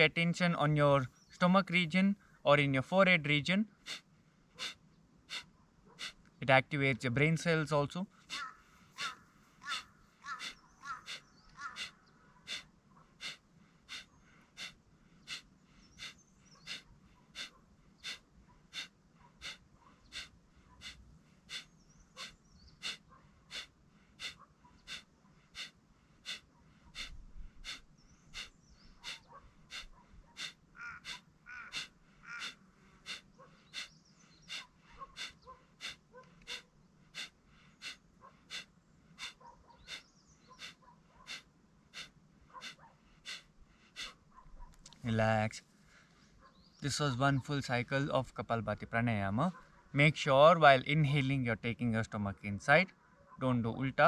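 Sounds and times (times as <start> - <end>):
forceful nasal exhalations: 3.8 - 6.2, 8.2 - 44.2.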